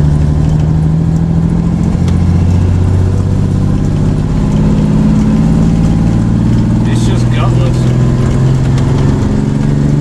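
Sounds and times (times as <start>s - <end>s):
diesel truck engine running: 0.0s - 10.0s
man talking: 6.8s - 7.9s.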